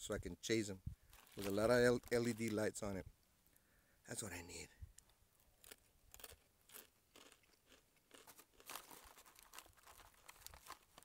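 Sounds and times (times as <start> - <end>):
person chewing pretzels: 5.6 - 11.0.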